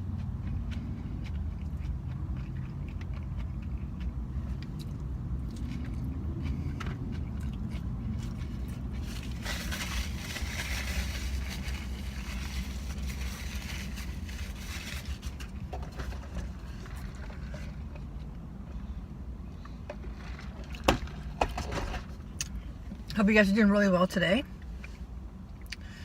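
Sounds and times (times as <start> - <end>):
chewing a taco: 0.0 - 21.4
steady low hum: 0.0 - 26.0
crackling while eating: 0.1 - 17.9.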